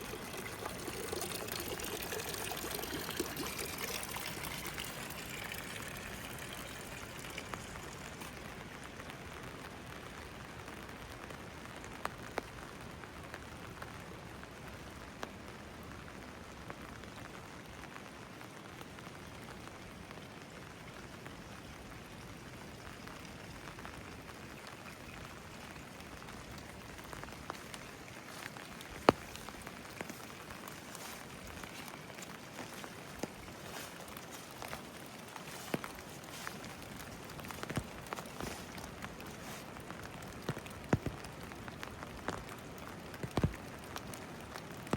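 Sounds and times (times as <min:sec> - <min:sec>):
sharp drip ticks: 0:00.0 - 0:08.6, 0:26.1 - 0:44.9
rain on stone: 0:00.0 - 0:44.9.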